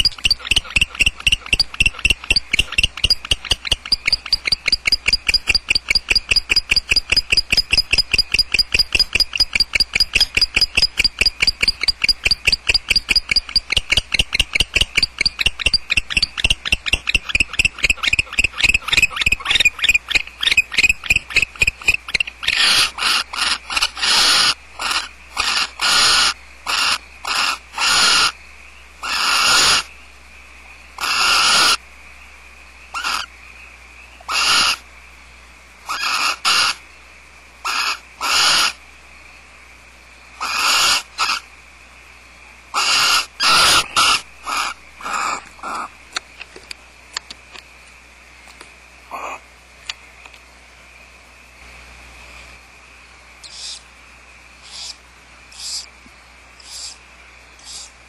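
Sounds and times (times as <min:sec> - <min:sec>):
barn owls hissing screeches: 0:15.0 - 0:28.4, 0:29.0 - 0:29.9, 0:31.0 - 0:31.8, 0:32.9 - 0:33.3, 0:34.3 - 0:34.8, 0:35.8 - 0:36.8, 0:37.6 - 0:38.8, 0:40.4 - 0:41.4, 0:42.7 - 0:46.0, 0:53.4 - 0:53.9, 0:54.6 - 0:55.9, 0:56.6 - 0:57.0, 0:57.6 - 0:58.0
faint clicks: 0:49.8 - 0:50.5.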